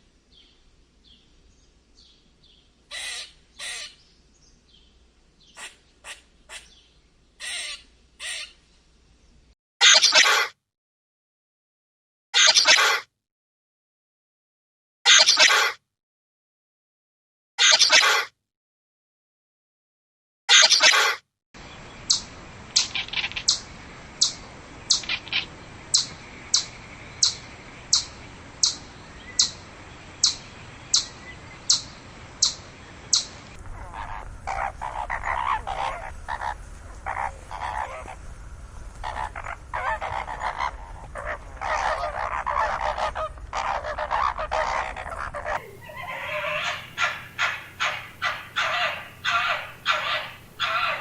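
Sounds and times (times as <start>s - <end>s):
sharp animal calls: 2.9s - 4.0s, 7.4s - 8.6s, 32.4s - 38.3s, 39.0s - 51.0s
clamour of overlapping animal calls: 32.5s - 51.0s
short high animal calls: 39.0s - 51.0s.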